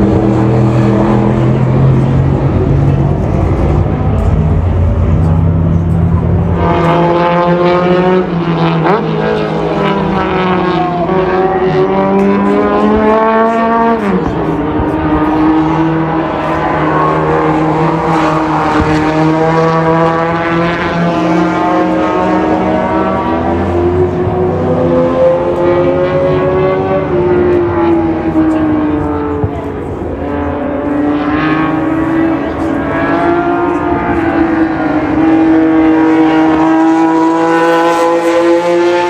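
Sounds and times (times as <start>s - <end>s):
racing car engines running hard: 0.0s - 39.0s.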